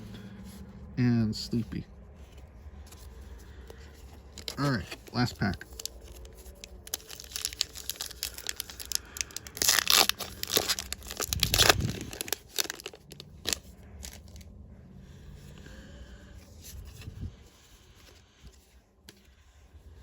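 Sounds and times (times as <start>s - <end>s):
wrapper and cards rustling: 1.4s - 14.6s
foil wrapper tearing and crinkling: 4.2s - 14.5s.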